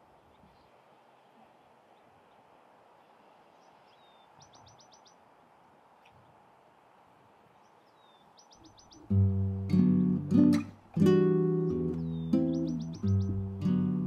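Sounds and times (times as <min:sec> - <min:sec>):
faint outdoor ambience: 0:00.0 - 0:14.0
bird calling: 0:03.5 - 0:05.2, 0:07.6 - 0:09.3, 0:10.0 - 0:14.0.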